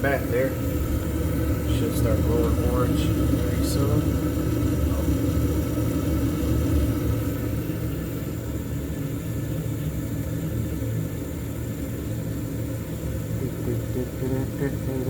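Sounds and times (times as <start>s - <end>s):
furnace motor humming: 0.0s - 15.0s.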